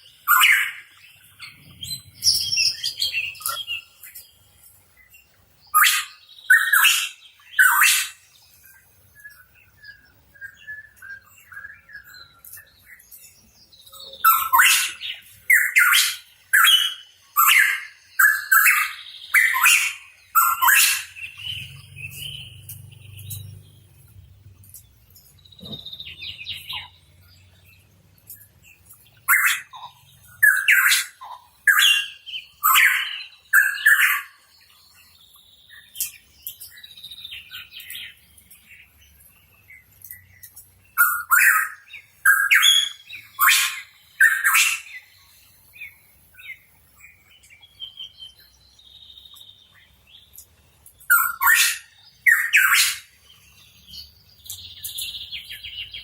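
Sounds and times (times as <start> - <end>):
bird chirpy whistled calls: 5.7 - 8.2, 13.9 - 23.6, 41.0 - 45.1, 51.1 - 53.2.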